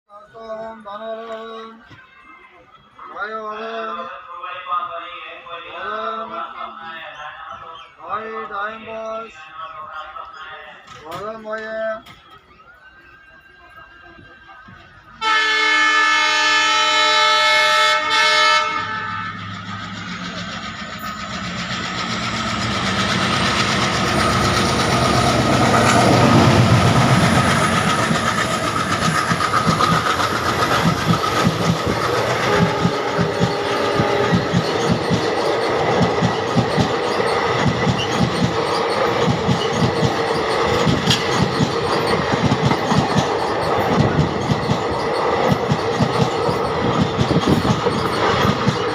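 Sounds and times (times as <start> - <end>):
train horn: 15.2 - 19.8, 32.1 - 34.8
train wheels clattering over rail joints: 19.5 - 48.9.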